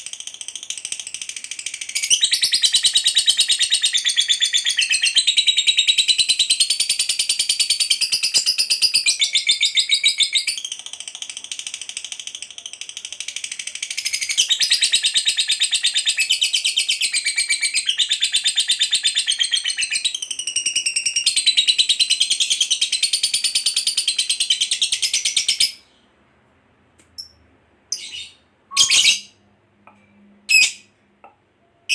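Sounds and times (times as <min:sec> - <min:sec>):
lovebird shrill chatter: 0:28.0 - 0:29.3, 0:30.5 - 0:30.8.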